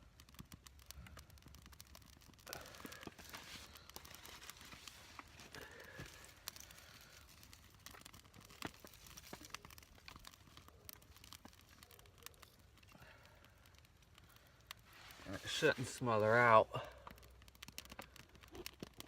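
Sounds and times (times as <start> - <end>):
small fire crackling: 0.0 - 19.0
rustling of dry material: 2.3 - 11.8, 14.8 - 16.6.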